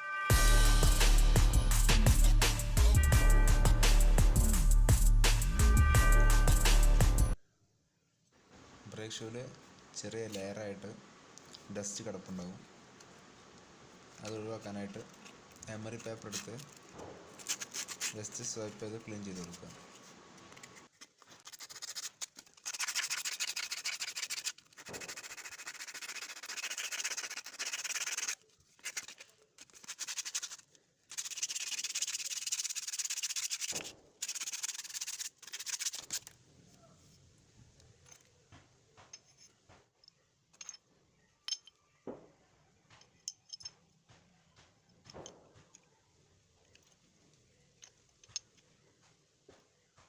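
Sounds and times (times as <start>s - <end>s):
sandpaper scraping brake shoe: 14.2s - 36.4s.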